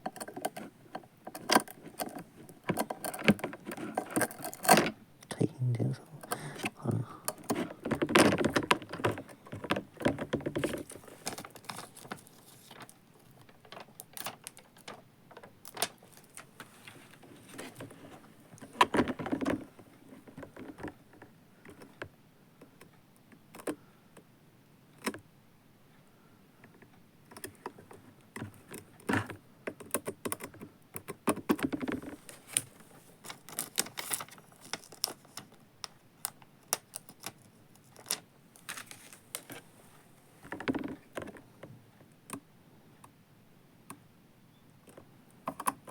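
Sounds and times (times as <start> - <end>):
rustling and rattling: 0.0 - 5.1, 6.2 - 22.0, 31.3 - 35.6, 36.8 - 41.8
small clicks and taps: 18.6 - 24.3.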